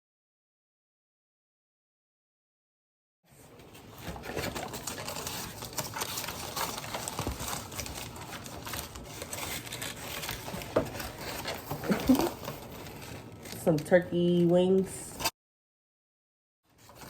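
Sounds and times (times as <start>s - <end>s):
plastic containers clicking and rustling: 3.6s - 14.8s.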